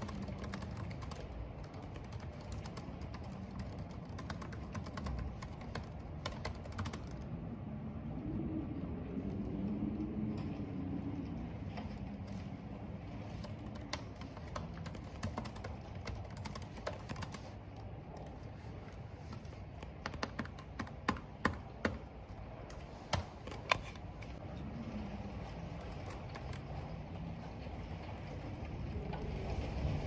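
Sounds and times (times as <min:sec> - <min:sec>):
computer keyboard typing: 0:00.0 - 0:07.2, 0:13.4 - 0:17.6, 0:19.3 - 0:22.0
wind and rain noise: 0:00.0 - 0:30.0.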